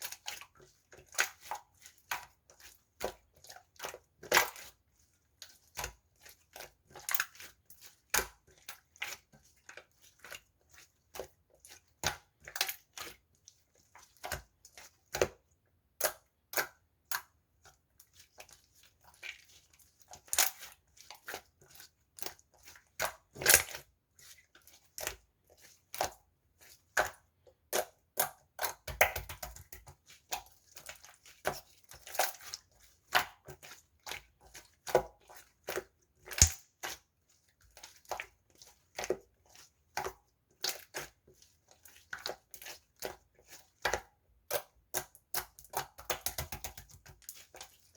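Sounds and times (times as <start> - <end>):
slime crackling and popping: 36.3 - 36.6.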